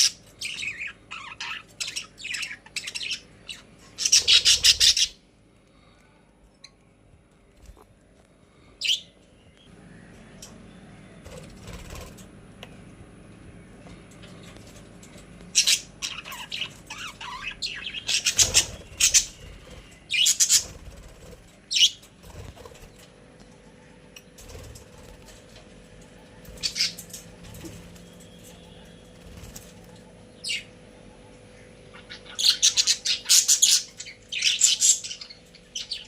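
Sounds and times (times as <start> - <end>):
budgies chirping: 0.0 - 5.2, 8.8 - 9.7, 15.5 - 23.0, 26.4 - 27.8, 28.4 - 36.0.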